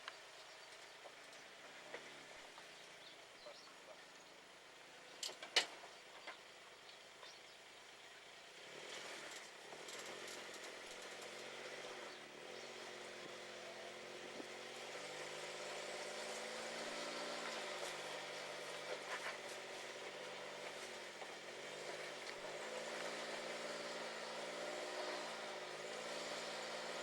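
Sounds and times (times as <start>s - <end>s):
small engine at low revs: 6.3s - 27.0s.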